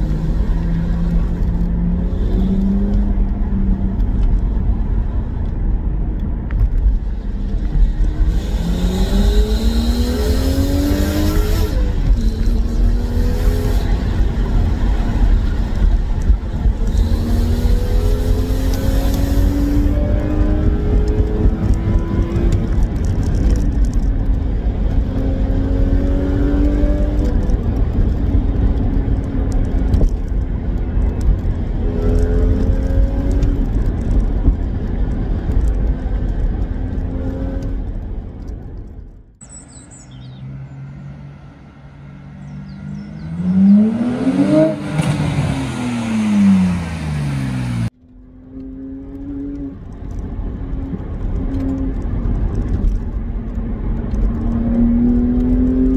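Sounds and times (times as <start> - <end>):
car engine heard from inside cabin: 0.0 - 40.8
bird chirp: 39.4 - 41.2, 42.3 - 43.9.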